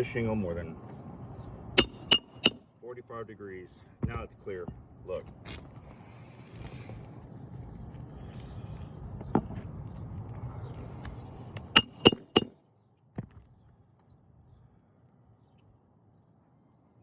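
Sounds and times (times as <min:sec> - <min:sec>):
tool click: 0:01.8 - 0:02.6, 0:11.8 - 0:12.5
tool clinks with ring: 0:01.8 - 0:02.6, 0:11.8 - 0:12.5.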